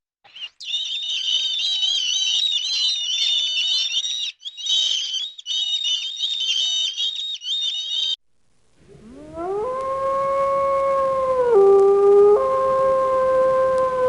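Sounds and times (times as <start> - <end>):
baby chicks peeping: 0.3 - 8.2.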